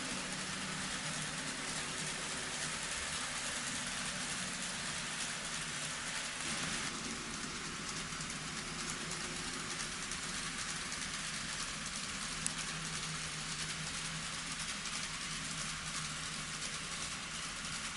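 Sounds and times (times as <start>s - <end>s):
low motor hum: 0.0s - 17.9s
model train wheels rattling: 0.0s - 17.9s.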